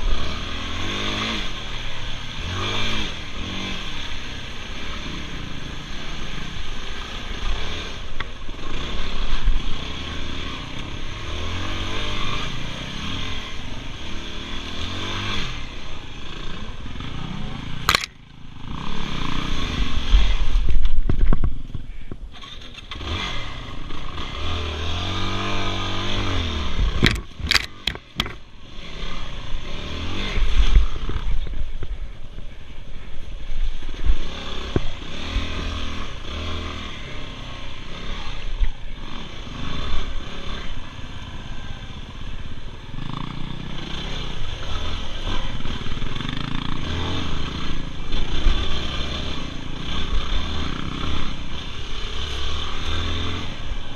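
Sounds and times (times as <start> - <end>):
dirt bike engine revving: 0.0 - 20.9, 21.9 - 32.1, 33.6 - 53.9.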